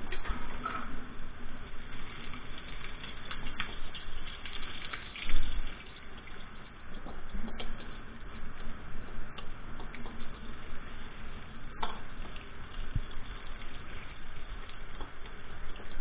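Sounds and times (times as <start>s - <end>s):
food sizzling in a frying pan: 10.2s - 16.0s.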